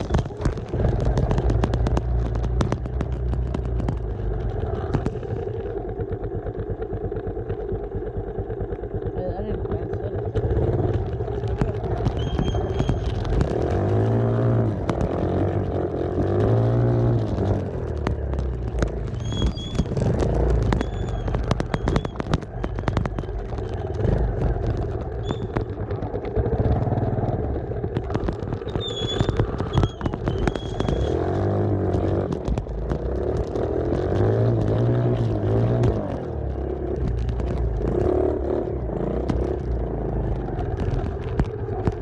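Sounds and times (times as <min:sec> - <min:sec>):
dirt bike engine revving: 0:09.6 - 0:18.0.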